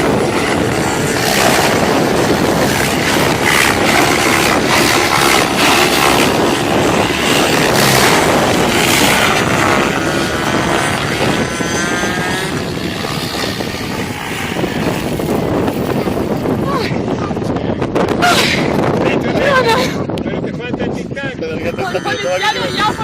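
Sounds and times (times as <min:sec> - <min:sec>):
electric motor whine: 0:00.0 - 0:16.5
helicopter rotor blades swishing: 0:00.0 - 0:17.2, 0:21.5 - 0:23.0.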